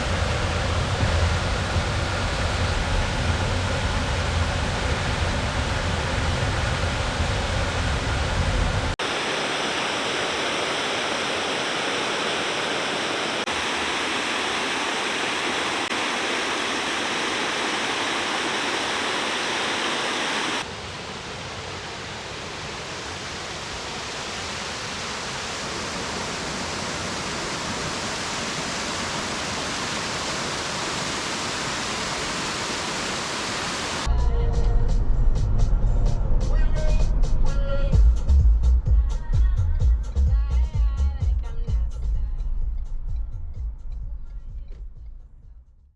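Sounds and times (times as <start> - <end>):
waterfall rushing: 8.9 - 34.1
low rumble: 34.1 - 38.1.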